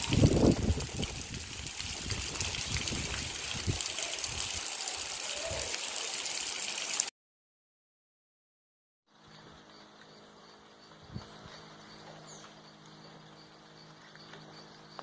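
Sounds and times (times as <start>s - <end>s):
water trickling and splashing: 0.0s - 7.1s.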